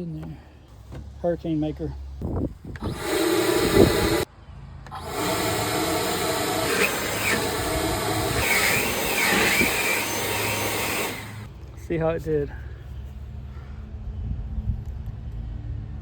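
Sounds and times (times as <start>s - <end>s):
leaf blower running: 2.8s - 4.3s, 4.9s - 11.5s.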